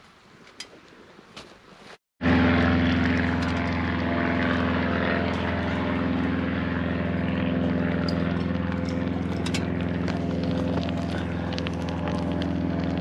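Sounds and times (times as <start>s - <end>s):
propeller plane engine drone: 2.2s - 13.0s.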